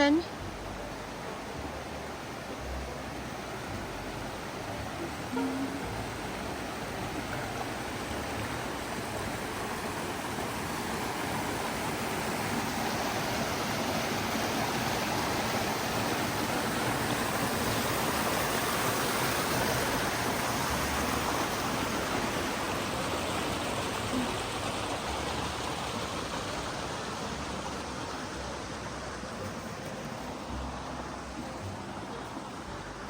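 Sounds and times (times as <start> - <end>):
creek water rushing over rocks: 0.0 - 33.0.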